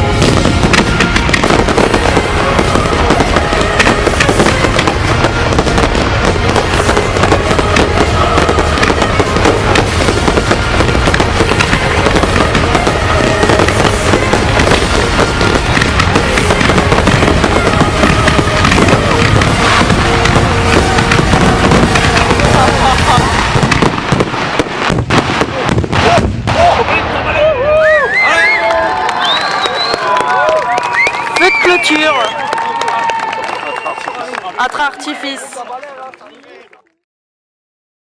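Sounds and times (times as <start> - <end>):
music playing: 0.0 - 24.2
fireworks crackling and banging: 0.0 - 36.8.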